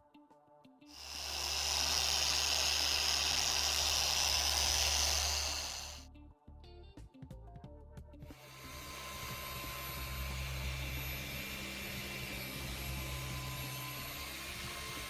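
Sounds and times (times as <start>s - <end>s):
electric polisher whirring: 1.0s - 6.0s, 8.4s - 15.0s.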